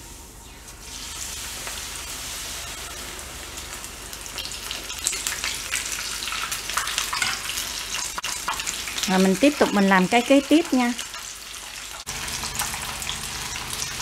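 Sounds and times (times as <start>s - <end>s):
fritter deep-frying in oil: 0.8s - 14.0s
oil crackles and pops: 3.4s - 14.0s.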